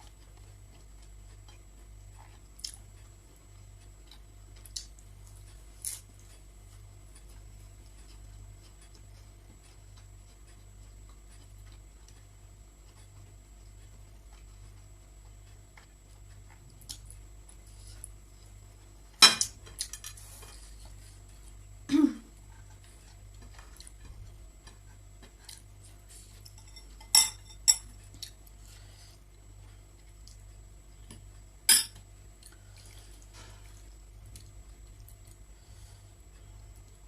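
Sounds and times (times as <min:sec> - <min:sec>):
faint steady hum: 0:00.0 - 0:37.0
cutlery clinking on a dish: 0:26.5 - 0:27.9.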